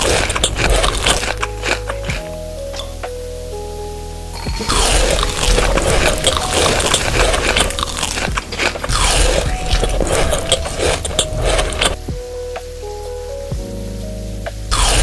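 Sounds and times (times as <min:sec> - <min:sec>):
crunchy chewing of food: 0:00.0 - 0:02.3, 0:04.6 - 0:12.0, 0:14.7 - 0:15.0.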